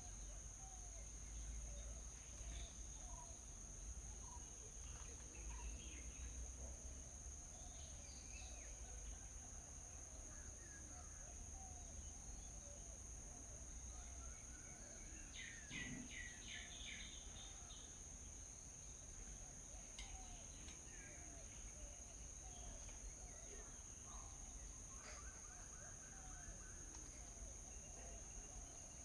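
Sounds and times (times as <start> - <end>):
small birds chirping: 15.2 - 18.0.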